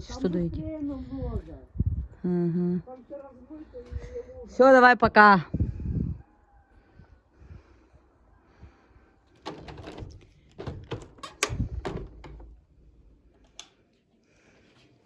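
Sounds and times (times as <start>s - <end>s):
door closing thump: 9.4s - 12.6s
door latch clicks and knocks: 9.4s - 13.7s.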